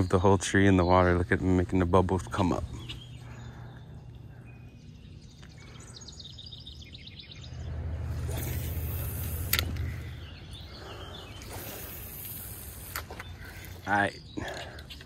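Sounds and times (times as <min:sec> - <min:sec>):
low rumble with hiss: 0:00.0 - 0:14.9
sharp click: 0:09.3 - 0:09.9.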